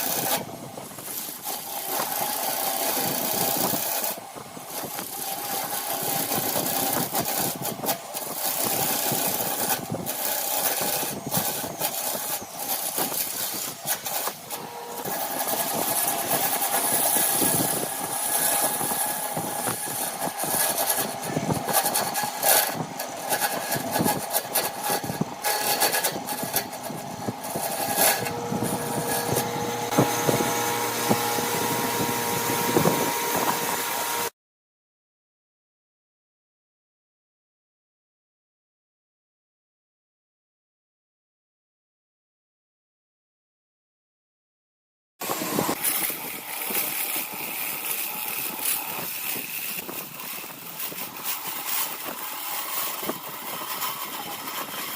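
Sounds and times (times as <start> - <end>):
lathe hiss and hum: 0.0 - 34.3
tool clicks and scrapes: 0.0 - 34.3, 45.2 - 54.9.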